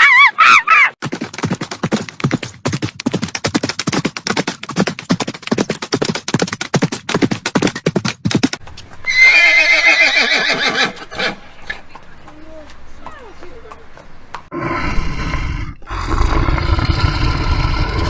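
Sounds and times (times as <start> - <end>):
horse hooves galloping: 1.0 - 14.7
horse whinnying: 9.0 - 11.4.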